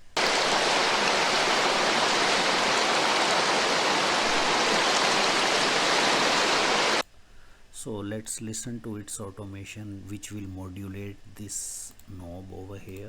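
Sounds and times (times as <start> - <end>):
rain hiss: 0.0 - 7.9.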